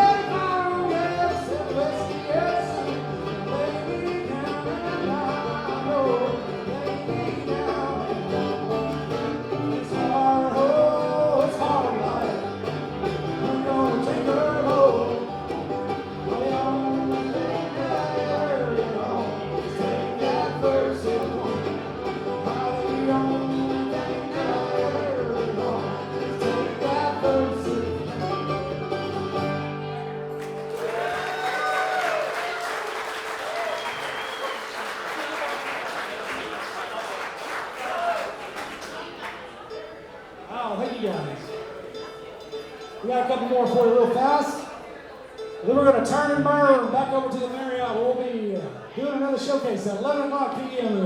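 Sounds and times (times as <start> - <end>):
bluegrass band playing: 0.0 - 35.1, 38.0 - 51.0
audience applause: 30.4 - 39.7.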